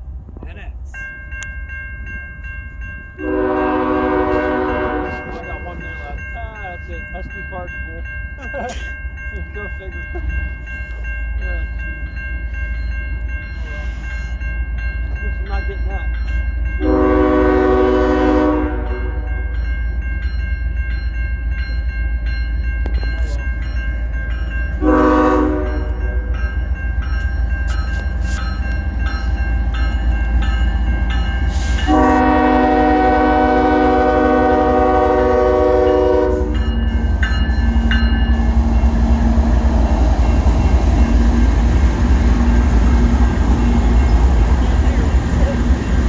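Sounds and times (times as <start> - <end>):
train rumbling: 0.0 - 46.0
locomotive air horn blasts: 3.2 - 5.4, 16.8 - 19.2, 24.8 - 26.0, 31.5 - 36.7.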